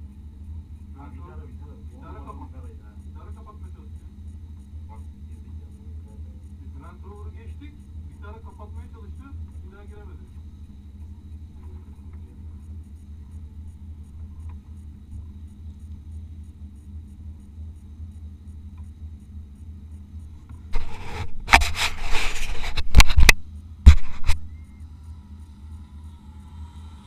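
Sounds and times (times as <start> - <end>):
loud noisy burst with knocks: 23.0 - 24.4.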